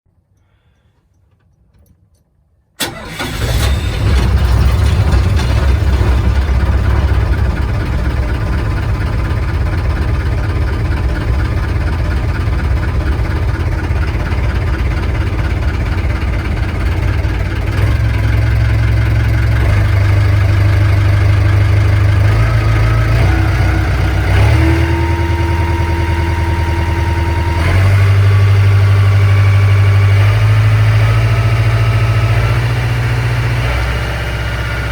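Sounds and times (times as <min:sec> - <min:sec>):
boat engine idling: 0:02.8 - 0:33.6.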